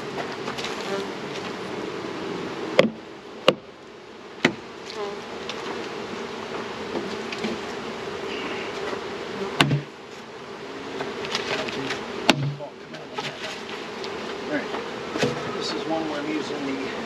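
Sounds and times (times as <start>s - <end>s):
bees buzzing: 0.0s - 17.0s
sharp knocks: 2.8s - 3.6s, 9.6s - 9.9s, 12.2s - 12.6s.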